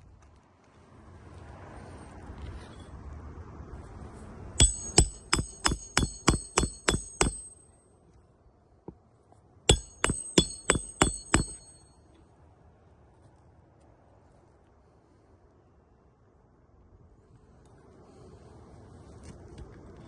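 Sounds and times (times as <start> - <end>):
hammer striking metal: 4.6 - 7.7, 9.7 - 12.0.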